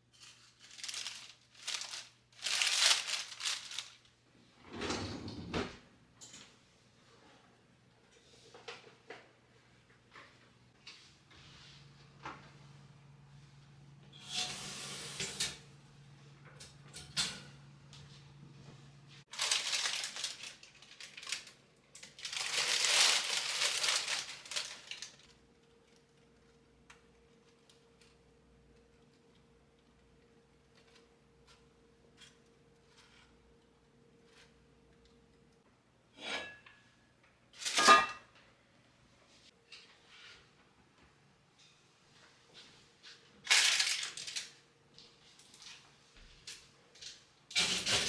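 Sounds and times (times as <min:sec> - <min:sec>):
crumpling and rustling: 0:00.0 - 0:04.2, 0:19.2 - 0:26.5, 0:43.4 - 0:47.2
objects rustling and scraping: 0:00.0 - 0:07.5, 0:10.1 - 0:25.4, 0:30.8 - 0:33.6.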